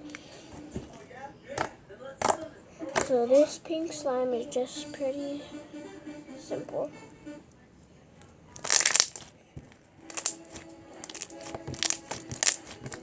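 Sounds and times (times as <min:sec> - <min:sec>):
slime crackling squelch: 0:08.2 - 0:13.0
slime clicks and pops: 0:08.6 - 0:09.3, 0:10.1 - 0:13.0.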